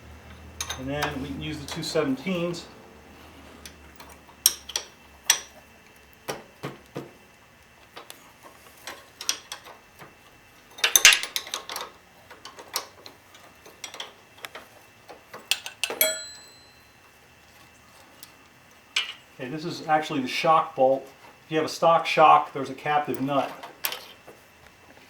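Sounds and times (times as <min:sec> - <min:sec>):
wrenches clinking on metal: 0:00.2 - 0:02.5, 0:03.6 - 0:05.6, 0:08.0 - 0:17.0, 0:19.0 - 0:19.3, 0:22.9 - 0:24.2
metal clatter: 0:10.6 - 0:14.7.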